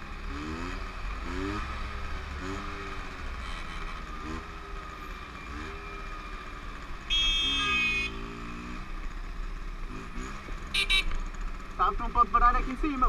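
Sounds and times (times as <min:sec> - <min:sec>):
motorcycle engine running: 0:00.0 - 0:13.0
vehicle horn: 0:07.0 - 0:08.5, 0:10.7 - 0:11.2.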